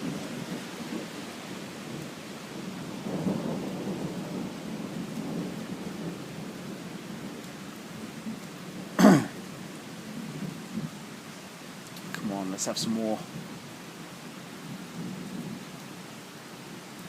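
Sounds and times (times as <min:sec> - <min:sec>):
thunder rumbling: 0:00.0 - 0:11.0
heavy rain falling: 0:00.0 - 0:17.0.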